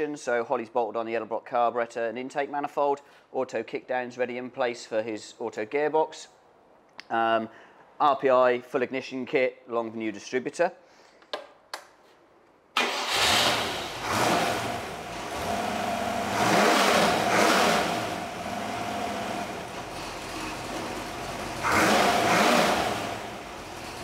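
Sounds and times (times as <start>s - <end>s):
engine starting and revving: 12.8s - 24.0s
exhaust rattle: 12.9s - 24.0s.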